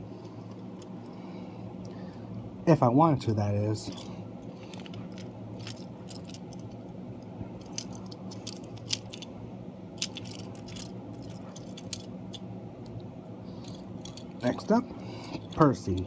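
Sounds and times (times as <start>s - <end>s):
steady low hum: 0.0s - 16.0s
toy train clicks and rattles: 3.9s - 6.8s, 7.6s - 9.3s, 10.0s - 12.1s, 13.6s - 16.0s.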